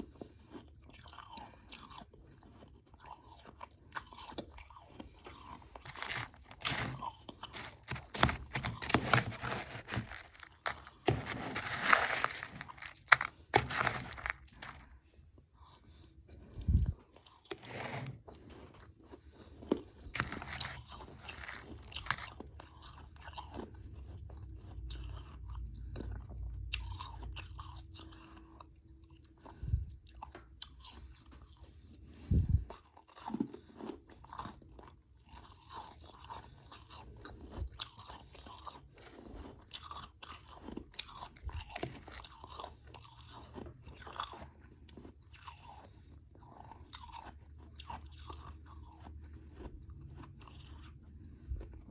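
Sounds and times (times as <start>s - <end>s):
person crunching ice: 5.3s - 14.9s, 20.2s - 22.4s, 41.0s - 42.7s.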